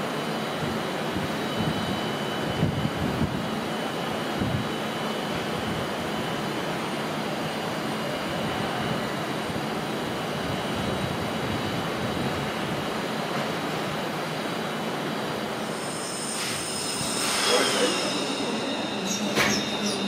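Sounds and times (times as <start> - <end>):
train rumbling: 14.9 - 20.0.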